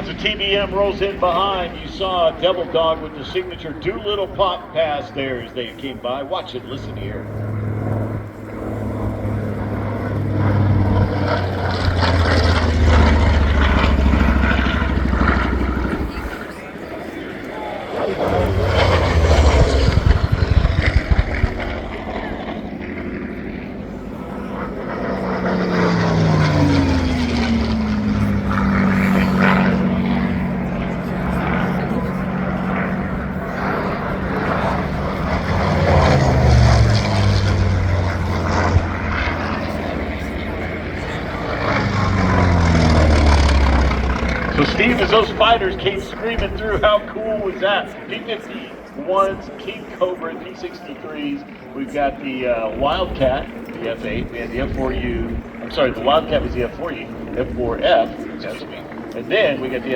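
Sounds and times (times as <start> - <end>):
propeller plane flying past: 0.0 - 59.9.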